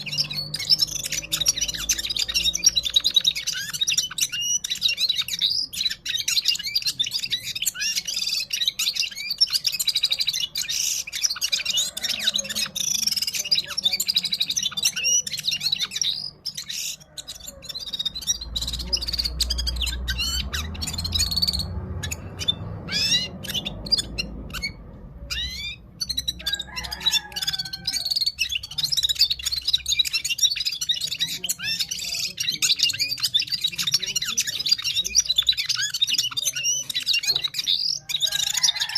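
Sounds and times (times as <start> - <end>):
bird song of rapid chirps: 0.0 - 38.9.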